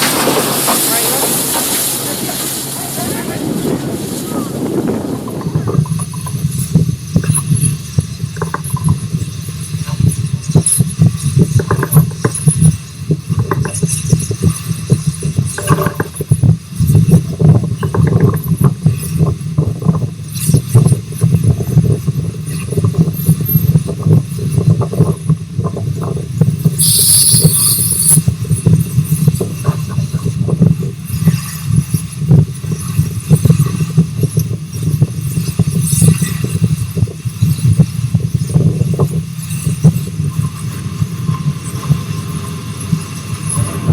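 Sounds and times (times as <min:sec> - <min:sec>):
steam train rumbling on track: 0:00.0 - 0:43.9
steam hiss: 0:26.8 - 0:28.2.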